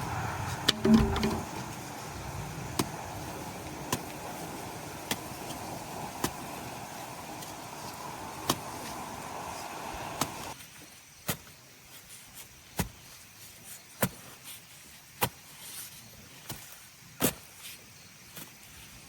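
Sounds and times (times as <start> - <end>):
steady rumbling noise: 0.0 - 10.6.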